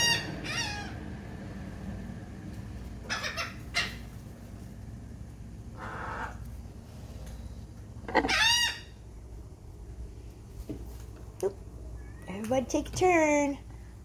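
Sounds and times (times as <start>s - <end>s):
birds calling: 0.0s - 1.1s, 3.0s - 4.4s, 5.6s - 6.7s, 7.3s - 9.3s.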